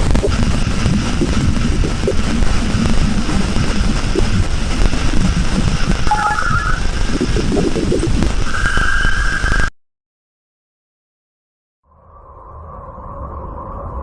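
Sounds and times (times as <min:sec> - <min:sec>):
crackling low rumble: 0:00.0 - 0:09.7.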